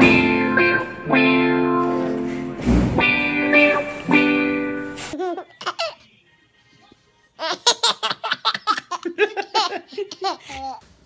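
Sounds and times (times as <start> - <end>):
baby laughing: 5.1 - 6.0, 7.4 - 10.8.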